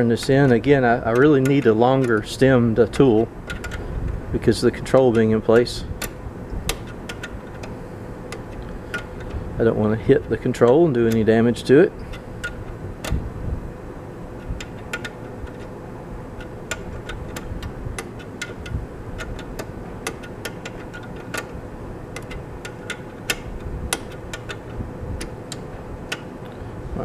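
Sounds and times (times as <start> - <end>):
faint steady hum: 0.0 - 27.0
wrench clicking: 0.4 - 2.3, 2.9 - 3.9, 4.9 - 11.3, 12.0 - 13.2, 14.4 - 15.7, 16.4 - 26.6.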